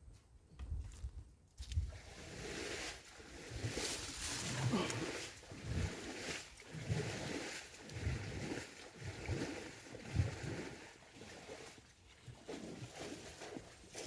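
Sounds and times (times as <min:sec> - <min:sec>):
water sloshing: 0:01.9 - 0:14.0.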